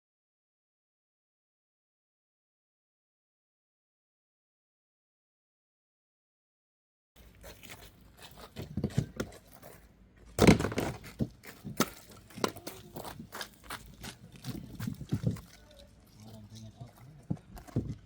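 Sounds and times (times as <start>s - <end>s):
loud thump: 10.4s - 11.0s.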